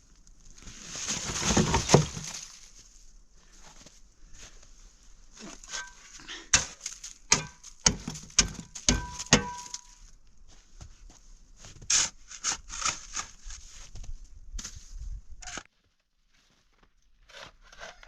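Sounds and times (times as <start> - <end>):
rustling and crackling: 0.0 - 6.2
wood strikes with ringing: 6.6 - 10.0.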